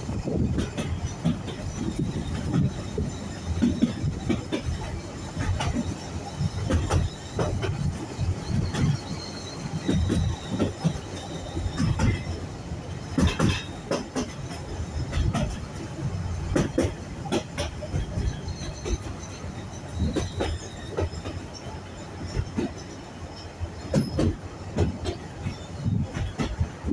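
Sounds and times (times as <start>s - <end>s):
train carriages rumbling: 0.0s - 26.9s
wheels clattering over rails: 0.0s - 26.9s
high wheel squeal: 5.8s - 12.6s, 17.8s - 22.1s.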